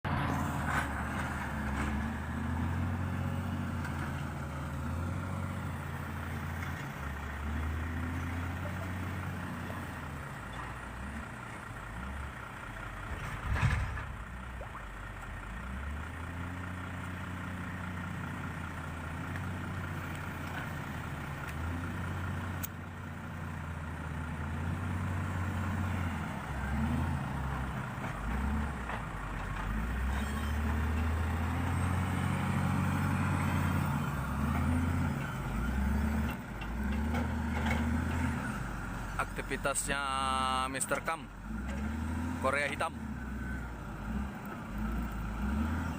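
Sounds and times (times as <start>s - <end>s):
heavy diesel engine running: 0.0s - 45.9s.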